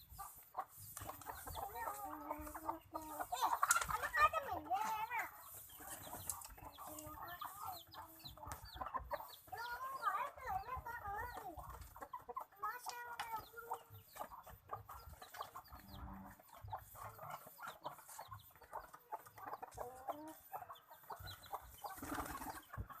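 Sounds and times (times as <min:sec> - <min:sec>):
birds clucking: 0:00.0 - 0:23.0
birds pecking taps: 0:00.8 - 0:15.9.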